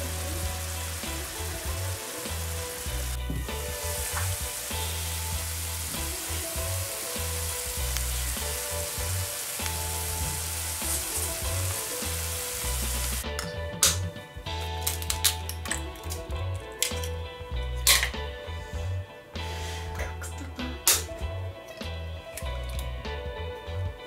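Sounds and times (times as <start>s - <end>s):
apples sizzling in a frying pan: 0.0s - 13.2s
background music: 0.0s - 24.0s.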